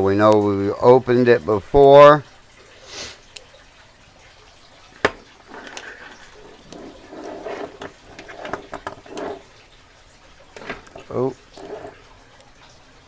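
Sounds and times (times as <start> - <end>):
lock-picking tools clicking: 10.6 - 12.0.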